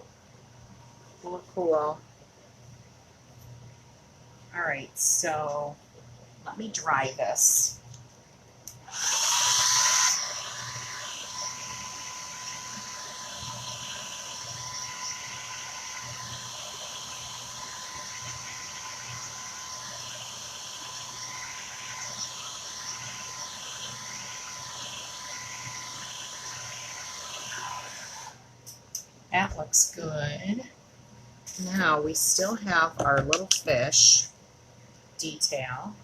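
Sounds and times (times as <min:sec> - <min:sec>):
handheld dryer blowing with high whine: 0:04.7 - 0:05.7, 0:08.7 - 0:28.4, 0:31.6 - 0:34.2.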